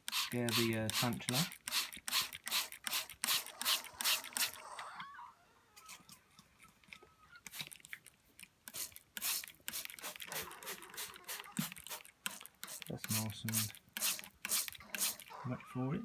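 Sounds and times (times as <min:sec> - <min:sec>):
spray bottle squirting water: 0:00.0 - 0:04.6, 0:07.4 - 0:15.4.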